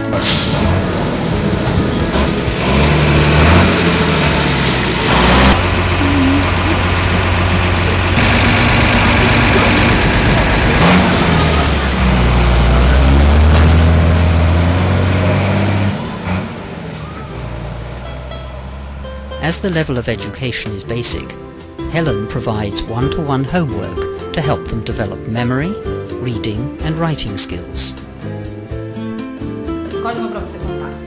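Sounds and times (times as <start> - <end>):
bus engine pulling away: 0.0 - 30.1
short air hisses: 0.2 - 0.7.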